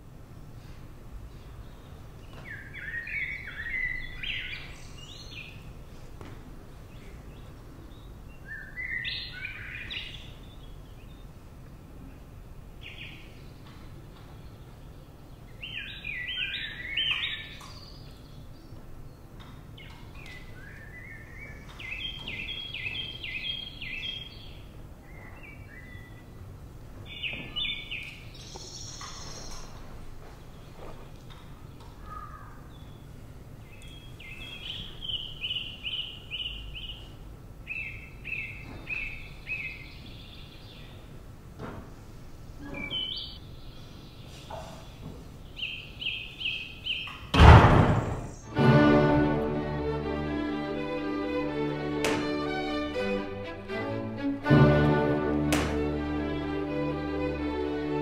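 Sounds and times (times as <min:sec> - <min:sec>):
songbird chirping and trilling: 0:01.4 - 0:05.7, 0:06.9 - 0:11.4, 0:12.1 - 0:26.4, 0:27.1 - 0:29.9, 0:31.6 - 0:41.2, 0:42.6 - 0:47.3.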